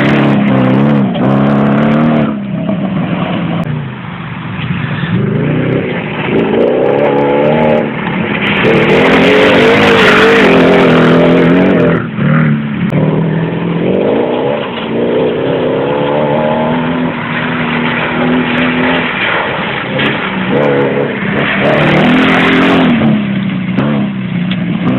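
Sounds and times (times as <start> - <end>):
engine revving loudly: 20.5 - 23.2.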